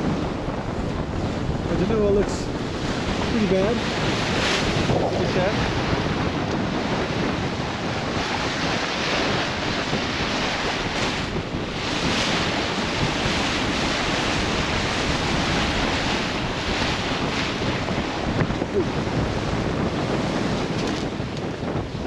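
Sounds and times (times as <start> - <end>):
waves rushing against hull: 0.0 - 22.0
wind buffeting microphone: 0.0 - 22.0.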